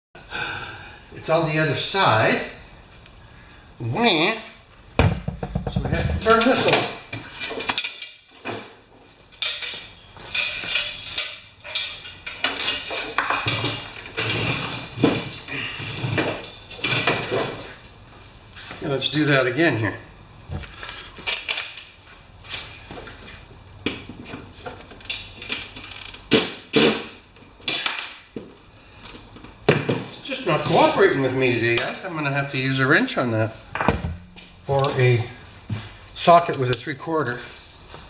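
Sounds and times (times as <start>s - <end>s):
metal clanking and scraping: 9.4s - 17.7s.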